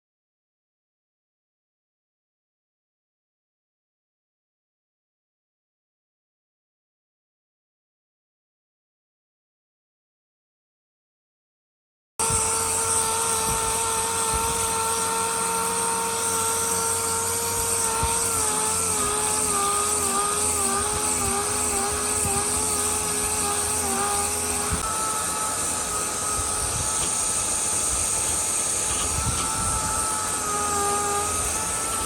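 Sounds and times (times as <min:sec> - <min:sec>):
power tool motor running: 0:12.2 - 0:32.0.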